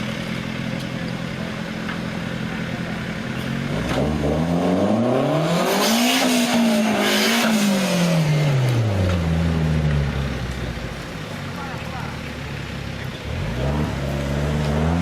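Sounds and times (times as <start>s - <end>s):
engine revving: 3.4s - 10.2s, 13.2s - 15.0s.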